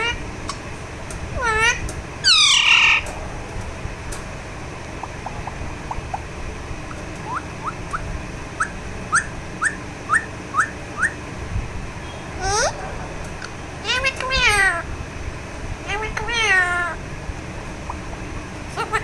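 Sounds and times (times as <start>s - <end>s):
parakeet calling: 1.4s - 3.1s, 4.7s - 11.2s, 12.0s - 12.8s, 13.8s - 14.9s, 15.8s - 19.0s.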